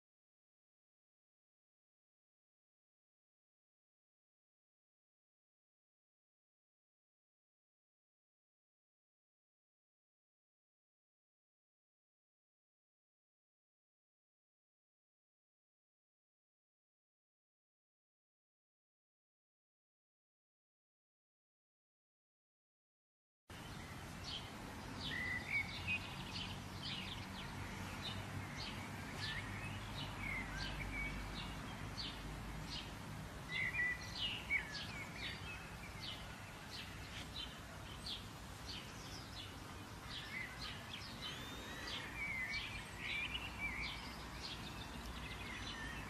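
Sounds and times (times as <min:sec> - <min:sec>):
small songbirds chirping: 0:23.5 - 0:46.0.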